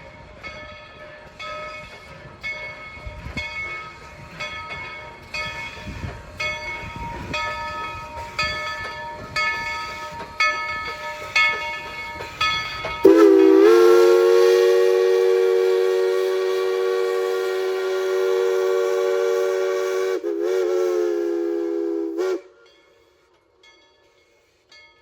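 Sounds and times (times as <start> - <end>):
steam locomotive bell ringing: 0.0 - 25.0
steam whistle chord: 13.0 - 22.6.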